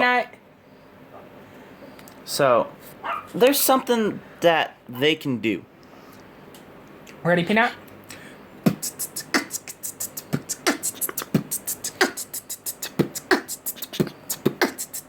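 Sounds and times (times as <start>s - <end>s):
beatbox mouth percussion: 8.1s - 15.0s.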